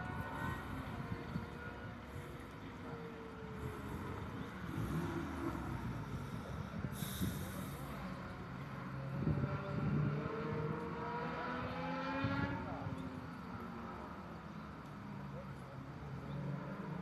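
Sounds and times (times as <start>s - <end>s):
race car engines: 0.0s - 17.0s.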